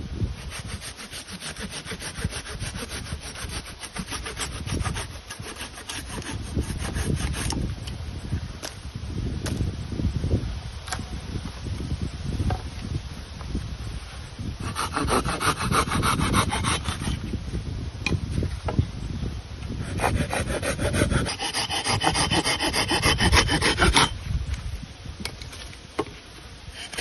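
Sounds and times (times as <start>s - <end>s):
hand saw cutting wood: 0.4s - 7.6s, 14.6s - 17.2s, 19.8s - 24.2s, 26.7s - 27.0s.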